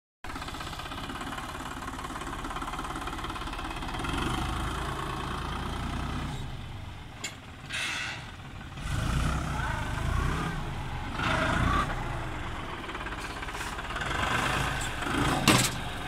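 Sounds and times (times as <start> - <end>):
tractor diesel engine running: 0.2 - 16.0.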